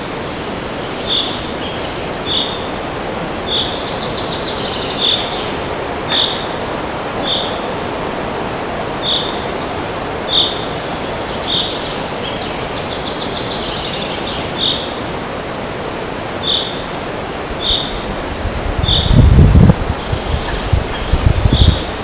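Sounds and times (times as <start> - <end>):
wind in a forest: 0.0 - 22.0
bird rapid trill: 3.5 - 7.6.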